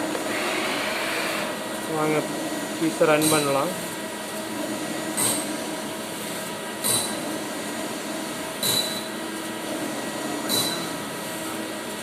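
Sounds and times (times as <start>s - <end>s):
lathe machine hum: 0.0s - 6.2s.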